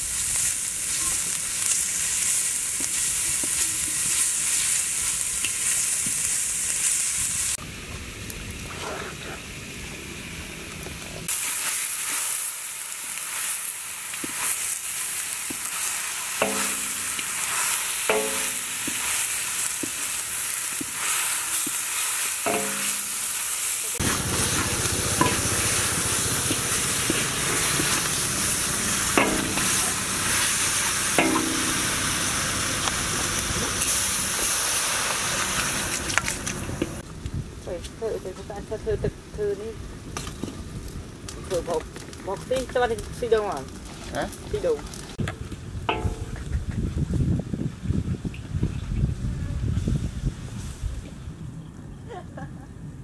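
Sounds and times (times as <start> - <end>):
food frying in hot oil: 0.0 - 37.0
spatula scraping a wok: 14.2 - 37.0.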